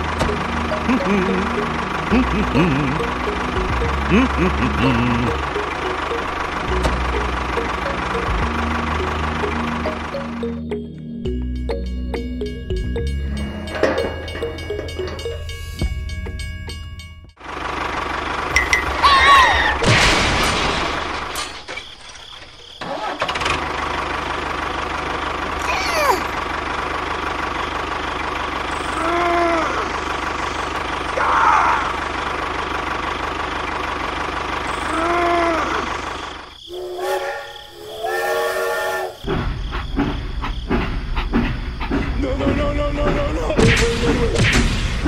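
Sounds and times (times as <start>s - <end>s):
tractor engine running: 0.0s - 37.0s, 39.2s - 45.0s
train horn: 36.7s - 39.2s.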